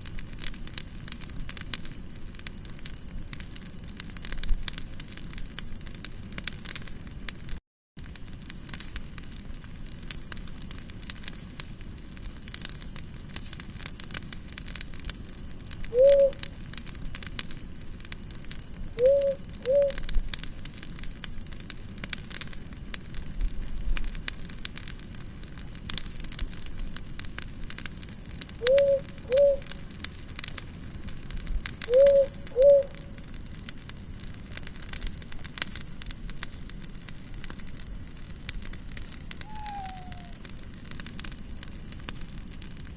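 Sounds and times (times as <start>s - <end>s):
campfire crackling: 0.0s - 42.9s
crickets chirping: 11.0s - 12.0s, 13.3s - 14.1s, 24.6s - 26.2s
animal low calls: 39.4s - 40.4s.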